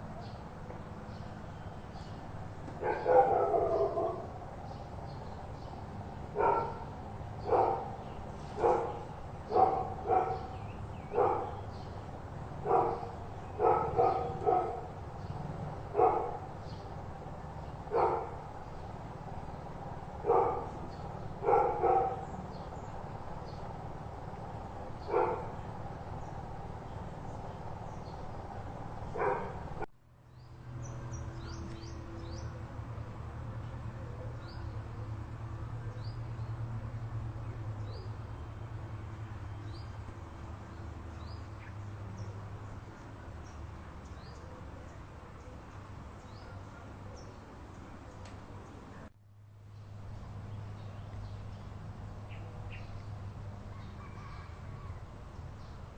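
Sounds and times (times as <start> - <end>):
dog barking: 2.8 - 4.3, 6.4 - 8.0, 8.6 - 11.6, 12.6 - 15.0, 15.9 - 16.5, 17.9 - 18.4, 20.2 - 20.8, 21.4 - 22.3, 25.0 - 25.6, 29.1 - 29.6.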